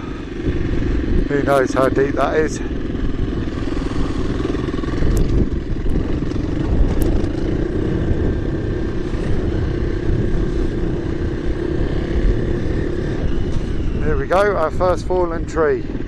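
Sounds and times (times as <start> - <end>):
dirt bike engine running: 0.0 - 16.0
sharp ticks: 4.4 - 7.6.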